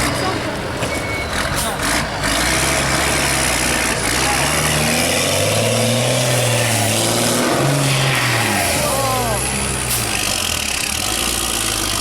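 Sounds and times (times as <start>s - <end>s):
truck engine revving under load: 0.0s - 12.0s.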